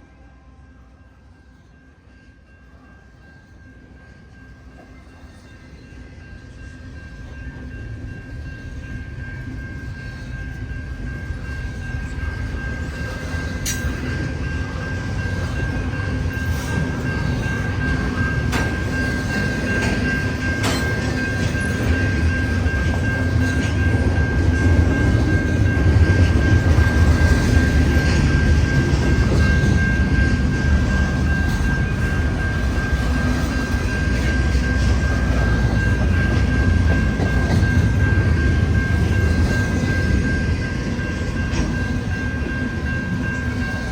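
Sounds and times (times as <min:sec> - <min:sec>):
freight train rumbling: 0:00.0 - 0:43.9
steady high-pitched tone: 0:00.0 - 0:43.9.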